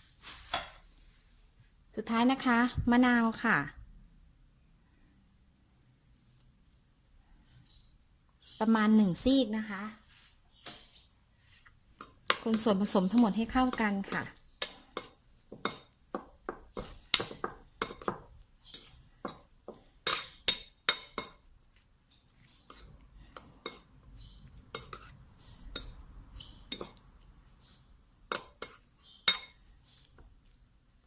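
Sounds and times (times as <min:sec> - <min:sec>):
spoon clinking against bowl: 0:16.8 - 0:21.4, 0:25.7 - 0:27.0, 0:28.3 - 0:29.6.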